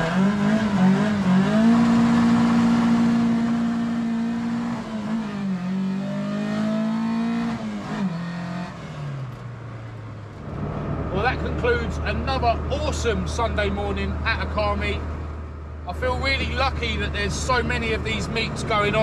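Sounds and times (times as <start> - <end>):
car engine accelerating through gears: 0.0 - 9.6.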